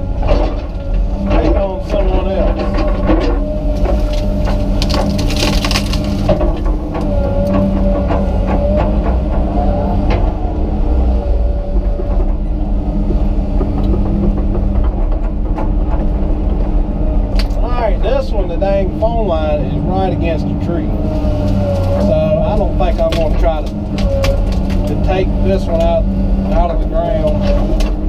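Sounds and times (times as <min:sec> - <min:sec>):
excavator engine and hydraulics: 0:00.0 - 0:28.0
wood cracking and snapping: 0:00.2 - 0:09.5, 0:17.3 - 0:17.6, 0:21.4 - 0:28.0.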